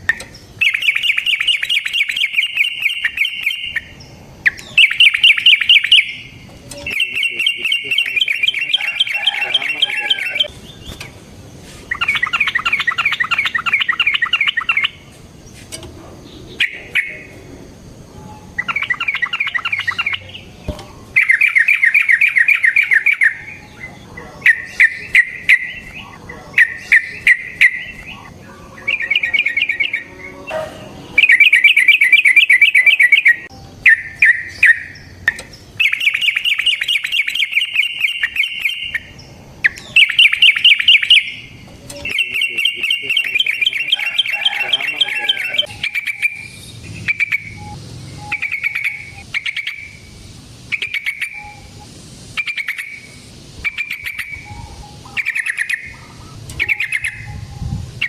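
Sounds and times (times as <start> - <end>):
bulbul chattering trills: 0.0 - 15.4, 16.1 - 58.0.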